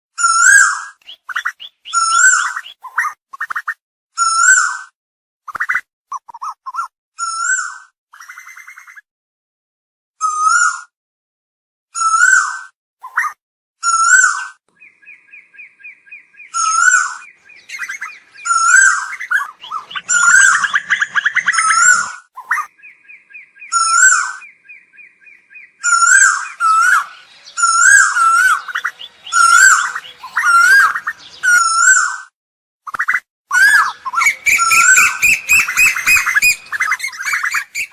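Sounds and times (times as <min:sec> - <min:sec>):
bird whistled calls: 0:00.3 - 0:03.1, 0:14.0 - 0:32.2, 0:33.0 - 0:37.9
rapid chattering bird notes: 0:16.5 - 0:22.9, 0:25.8 - 0:31.7, 0:33.6 - 0:37.9.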